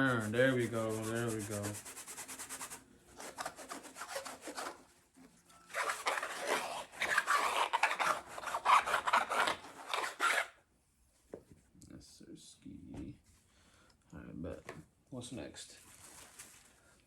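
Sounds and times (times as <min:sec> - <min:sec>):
hat being scrubbed: 0:00.0 - 0:04.9, 0:05.7 - 0:10.5.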